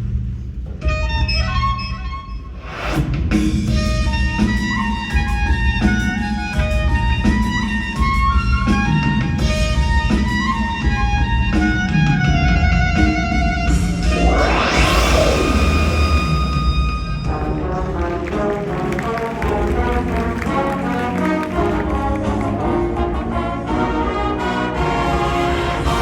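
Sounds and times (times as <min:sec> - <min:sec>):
drum strokes: 0:11.6 - 0:20.9
low held wind chords: 0:13.7 - 0:18.9.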